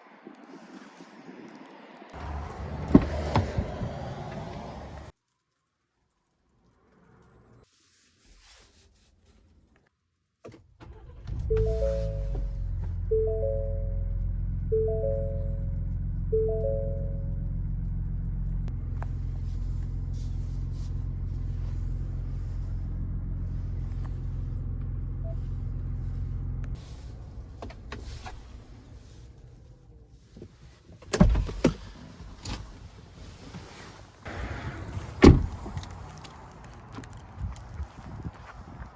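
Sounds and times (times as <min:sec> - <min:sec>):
car engine idling: 0:02.2 - 0:05.1, 0:10.9 - 0:28.2, 0:34.3 - 0:37.4
short chime: 0:11.5 - 0:14.1, 0:14.8 - 0:15.7, 0:16.4 - 0:17.2.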